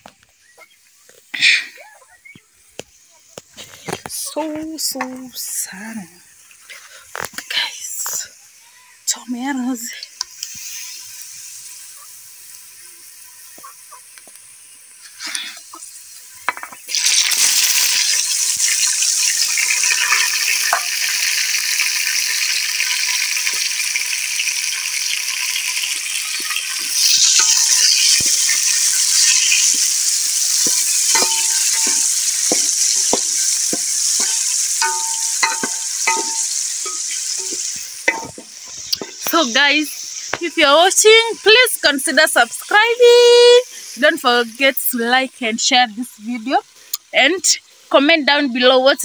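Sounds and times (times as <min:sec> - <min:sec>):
tomatoes sizzling in hot oil: 0:00.0 - 0:49.0
wooden spoon knocking on pot: 0:30.7 - 0:39.1.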